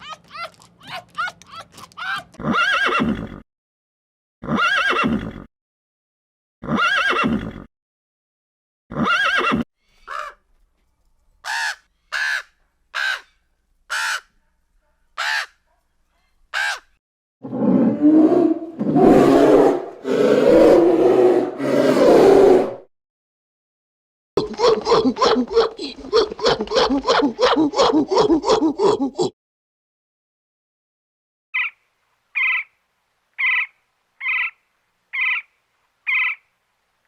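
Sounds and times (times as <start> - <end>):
horse neighing: 2.2 - 3.4, 4.4 - 5.5, 6.6 - 7.7, 8.9 - 9.6.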